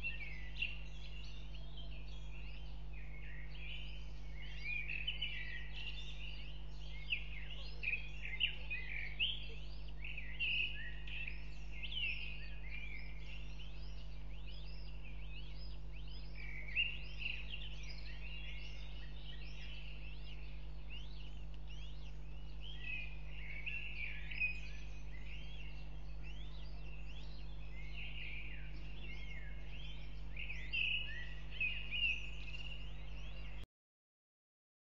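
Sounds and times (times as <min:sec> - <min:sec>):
birds chirping and twittering: 0:00.0 - 0:33.7.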